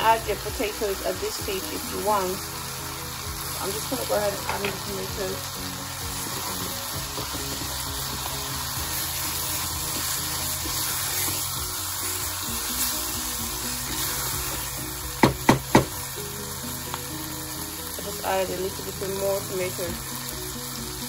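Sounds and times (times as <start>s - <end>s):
background music: 0.0s - 21.0s
vegetables sizzling in a saucepan: 0.0s - 21.0s
wooden spoon stirring: 8.9s - 14.8s.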